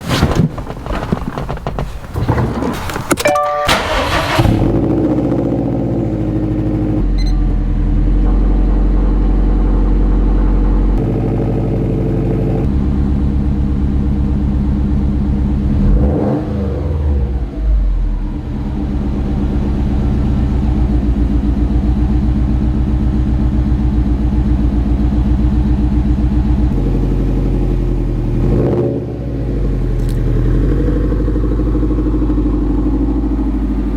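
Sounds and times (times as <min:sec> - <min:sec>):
clatter: 0:00.0 - 0:05.0, 0:29.7 - 0:33.9
car engine pulsing exhaust: 0:00.0 - 0:33.9.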